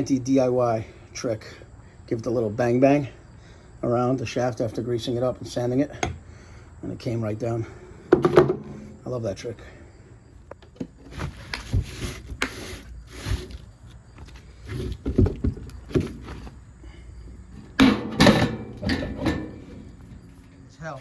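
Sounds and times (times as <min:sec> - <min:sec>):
tools knocking and clattering: 0:08.1 - 0:09.0, 0:17.6 - 0:20.7
short scraping noises: 0:11.1 - 0:15.1.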